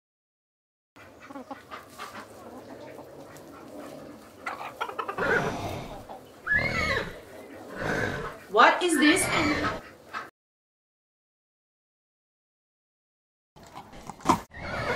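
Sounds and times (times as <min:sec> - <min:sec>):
chickens clucking: 0:01.0 - 0:10.3
loud animal calls: 0:01.0 - 0:10.3, 0:14.5 - 0:14.9
small birds chirping: 0:01.0 - 0:10.3.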